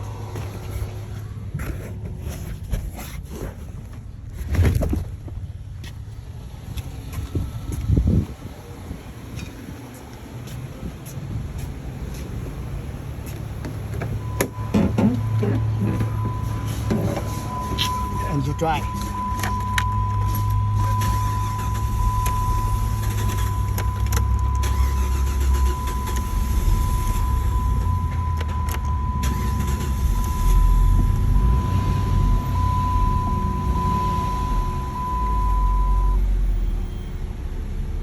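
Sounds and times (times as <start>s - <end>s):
car engine rumbling: 0.0s - 38.0s.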